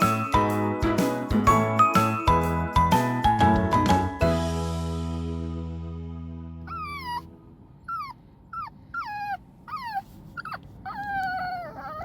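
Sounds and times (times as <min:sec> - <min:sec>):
piano tune: 0:00.0 - 0:07.6
puppy howling: 0:06.7 - 0:07.3, 0:07.9 - 0:12.0.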